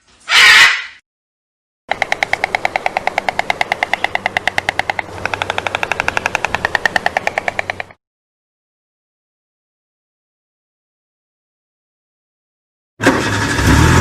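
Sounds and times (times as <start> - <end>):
rapid rattle of ringing clicks: 1.9 - 8.0.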